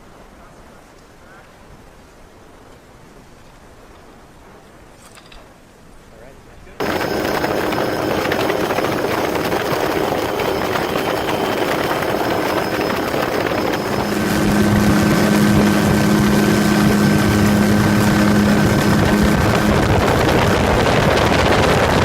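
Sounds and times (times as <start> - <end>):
helicopter running: 6.8 - 22.0.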